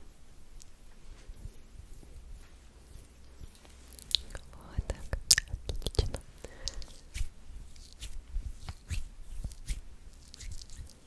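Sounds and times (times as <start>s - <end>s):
wet mouth clicks and smacks: 3.5s - 7.2s, 9.5s - 11.0s.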